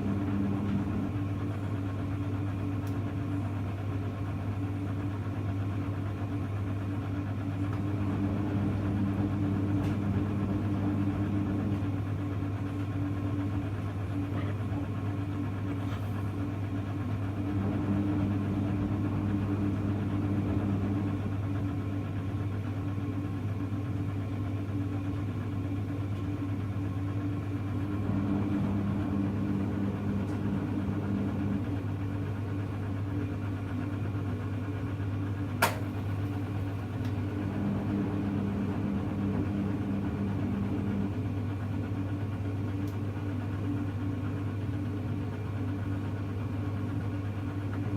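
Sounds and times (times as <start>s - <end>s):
steady low hum: 0.0s - 47.9s
washing machine drum turning: 35.5s - 40.0s.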